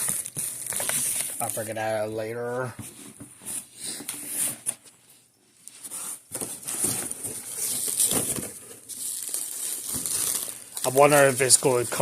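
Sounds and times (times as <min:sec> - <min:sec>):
packaging crinkling and rustling: 0:00.0 - 0:01.9, 0:06.3 - 0:12.0.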